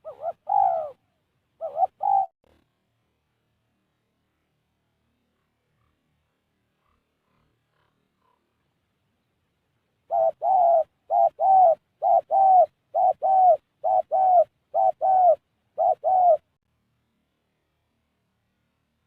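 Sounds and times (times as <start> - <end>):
dove cooing: 0.0 - 2.4, 10.0 - 16.5.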